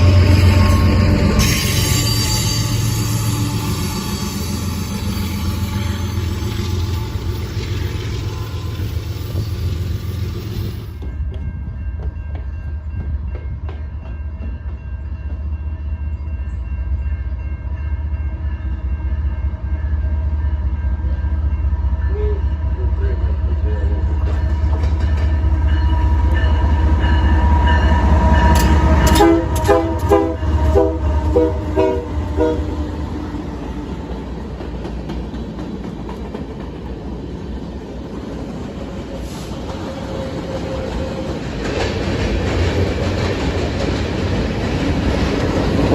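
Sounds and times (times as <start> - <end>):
diesel locomotive engine rumble: 0.0 - 45.9
rail cars rolling past: 0.0 - 45.9
train horn short blasts: 28.6 - 32.9.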